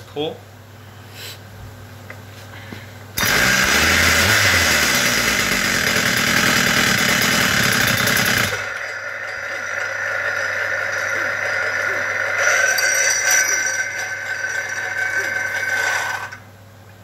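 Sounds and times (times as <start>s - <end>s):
two-stroke engine starting and running: 3.2s - 16.5s.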